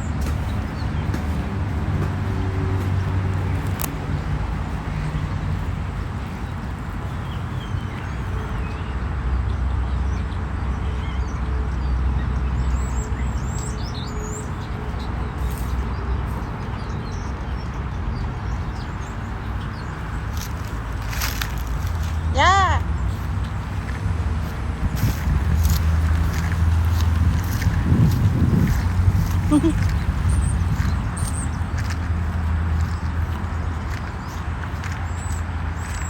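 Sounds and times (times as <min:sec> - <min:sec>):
steady rumbling: 0:20.2 - 0:36.0.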